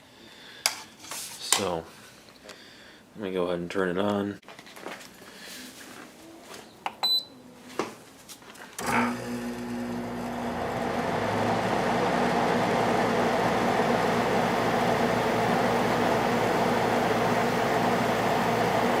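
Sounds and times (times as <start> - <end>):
air conditioner fan whooshing: 11.0 - 19.0.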